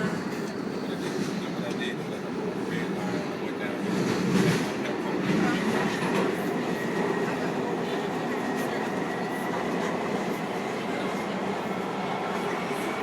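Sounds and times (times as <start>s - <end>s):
train wheels rumbling on rails: 2.9s - 13.0s.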